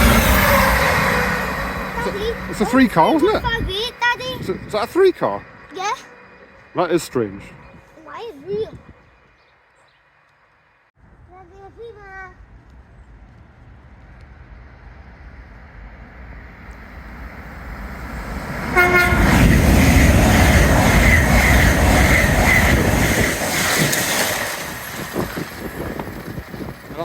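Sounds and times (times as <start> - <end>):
train horn blast: 0.0 - 7.7, 18.6 - 22.7
train passing at speed: 0.0 - 27.0.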